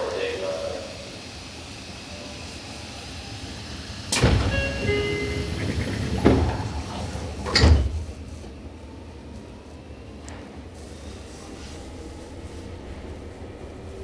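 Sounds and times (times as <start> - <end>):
train doors thudding shut: 4.0 - 8.6.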